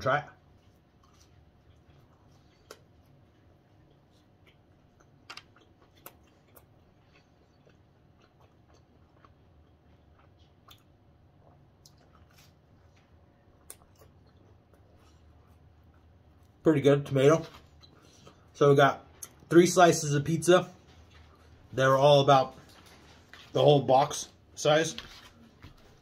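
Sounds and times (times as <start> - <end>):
faint chewing: 0.4 - 16.6, 20.7 - 21.8.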